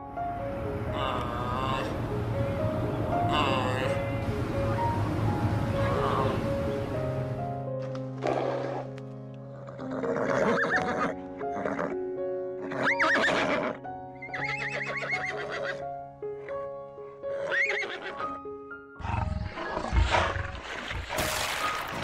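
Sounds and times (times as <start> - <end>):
background music with held notes: 0.0 - 19.4
horses neighing: 9.5 - 12.0, 12.6 - 15.8, 17.3 - 18.3.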